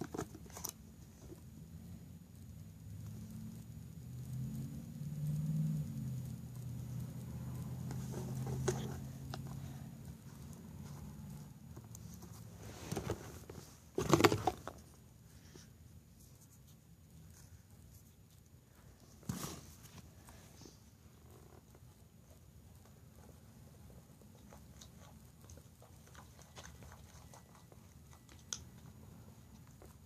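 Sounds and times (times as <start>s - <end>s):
low steady hum: 0.0s - 30.0s
slime being mixed in a bowl: 19.2s - 30.0s.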